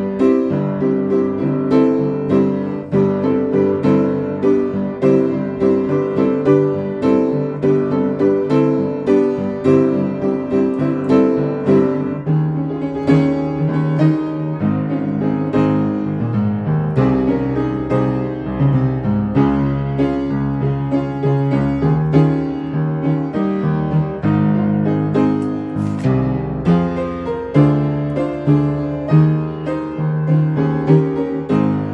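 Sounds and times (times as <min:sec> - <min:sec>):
piano hymn accompaniment: 0:00.0 - 0:31.9.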